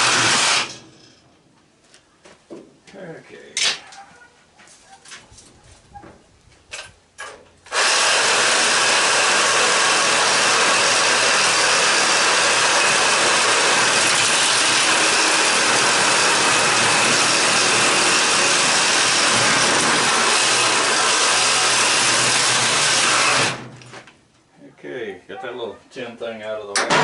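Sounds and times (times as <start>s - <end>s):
power tool cutting: 0.0s - 1.0s, 7.7s - 23.7s.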